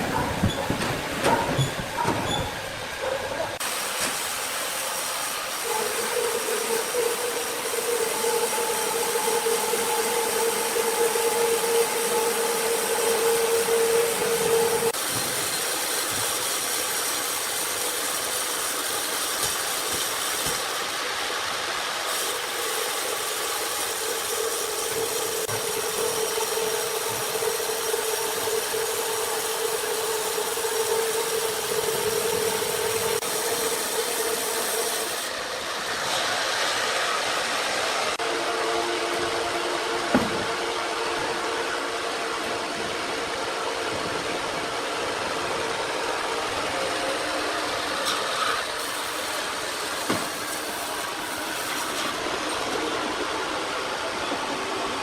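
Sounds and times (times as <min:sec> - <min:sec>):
held machine whine: 0:00.0 - 0:19.1, 0:21.0 - 0:55.0
sawmill machinery running: 0:00.0 - 0:55.0.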